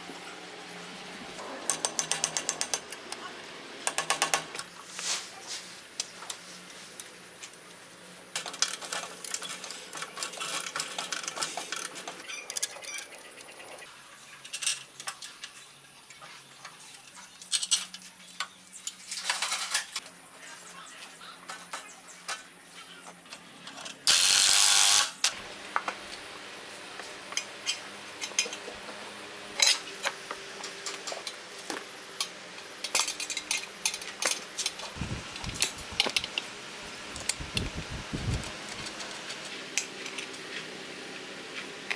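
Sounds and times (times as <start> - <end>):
metal tools clinking: 8.4 - 13.1, 32.8 - 34.8.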